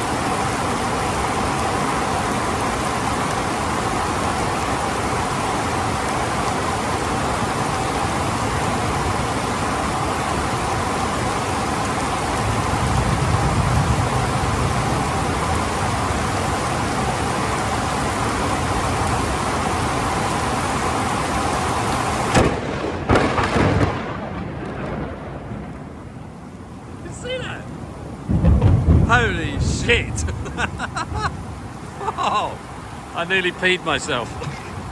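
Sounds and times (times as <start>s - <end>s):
heavy rain pouring: 0.0s - 34.9s
sharp thunderclap: 12.4s - 16.4s, 22.3s - 26.6s, 28.0s - 31.2s.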